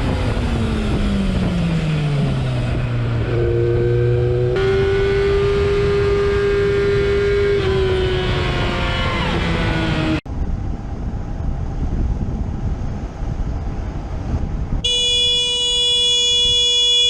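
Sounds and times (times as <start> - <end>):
road and wind noise: 0.0 - 17.0
vehicle horn blast: 14.8 - 17.0.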